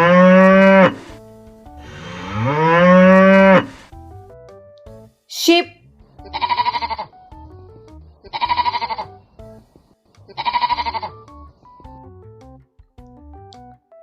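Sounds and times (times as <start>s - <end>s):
soft background music: 0.0s - 14.0s
sheep bleating: 6.2s - 7.2s, 8.3s - 9.1s, 10.3s - 11.2s.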